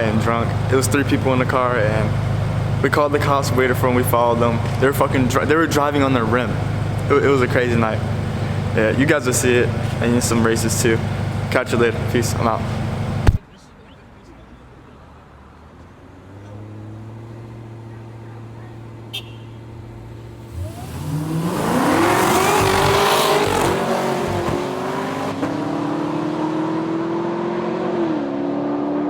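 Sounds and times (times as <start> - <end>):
car engine revving and accelerating: 16.0 - 19.1, 19.7 - 29.0.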